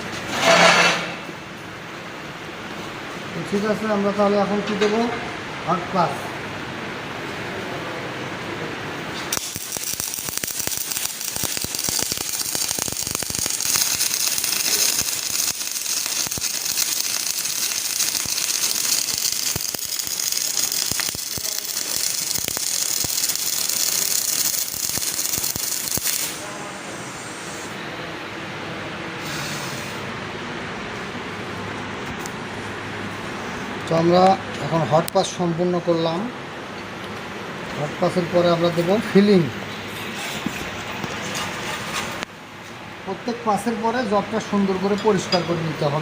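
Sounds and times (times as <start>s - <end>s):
welding arc crackling: 9.2s - 26.5s.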